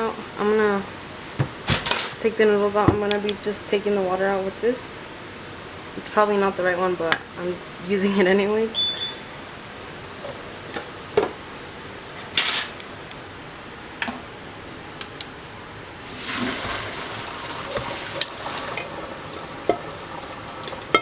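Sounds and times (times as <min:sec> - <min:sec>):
water being poured off: 0:16.0 - 0:21.0.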